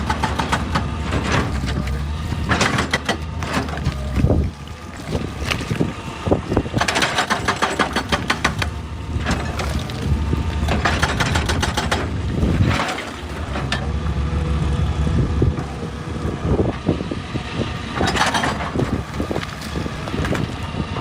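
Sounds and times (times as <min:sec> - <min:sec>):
sharp knocks and clatter: 0:00.0 - 0:04.4, 0:06.8 - 0:10.0, 0:10.6 - 0:13.9
excavator diesel engine running: 0:00.0 - 0:21.0.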